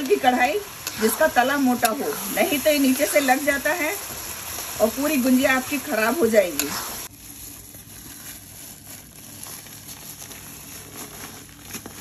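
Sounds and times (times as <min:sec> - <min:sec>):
faint steady sizzle: 0:00.0 - 0:12.0
small crackles: 0:03.0 - 0:12.0.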